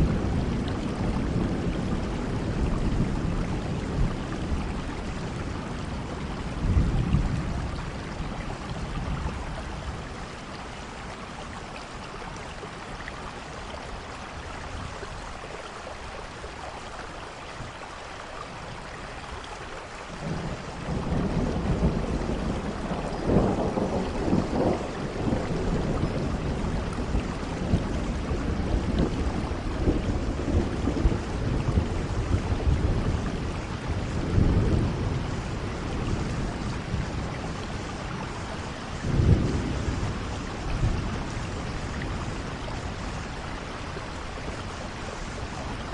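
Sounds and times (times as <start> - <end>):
thunder rumbling: 0.0 - 10.5, 20.2 - 45.9
steady rain: 0.0 - 45.9.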